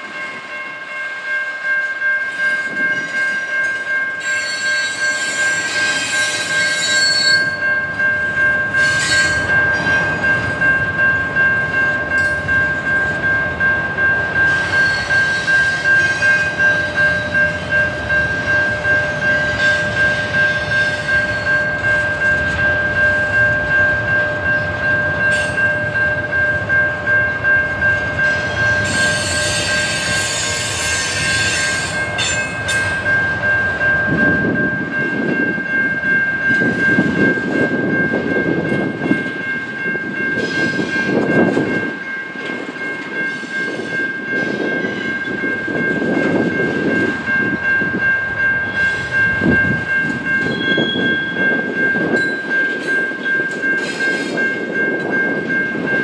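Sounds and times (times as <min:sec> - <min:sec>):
high squeal from train wheels: 0:02.3 - 0:08.0, 0:08.7 - 0:11.1, 0:14.3 - 0:22.6, 0:28.2 - 0:35.4, 0:40.1 - 0:55.2.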